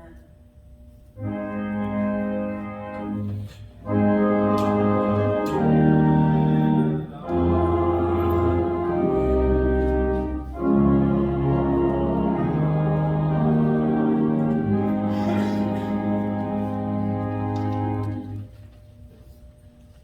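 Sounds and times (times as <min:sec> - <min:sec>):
church organ chords: 0:01.2 - 0:18.7
deep organ bass note: 0:01.6 - 0:18.3.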